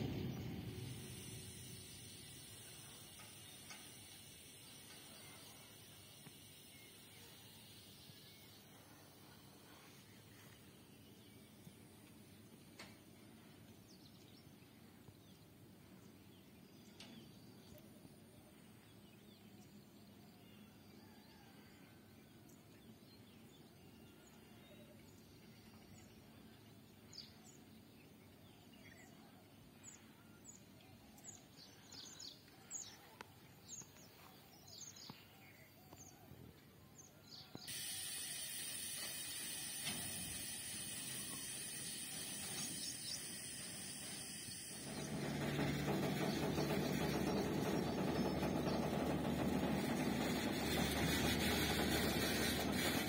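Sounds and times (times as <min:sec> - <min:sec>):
faint low rumble: 0:00.0 - 0:03.1
steady hiss: 0:00.0 - 0:19.0, 0:37.2 - 0:53.0
small birds chirping: 0:37.0 - 0:53.0.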